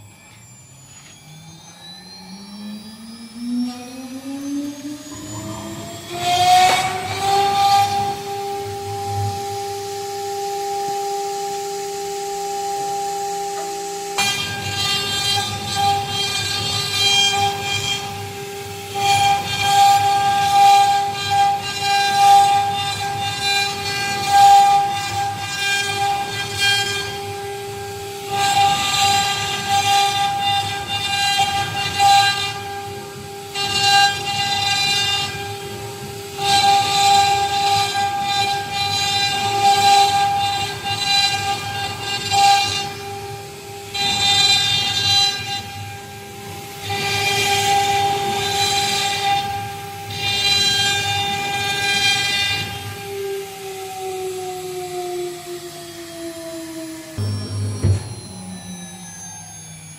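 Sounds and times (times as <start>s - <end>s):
router spindle whine: 0.0s - 59.9s
bit cutting wood: 0.2s - 43.0s.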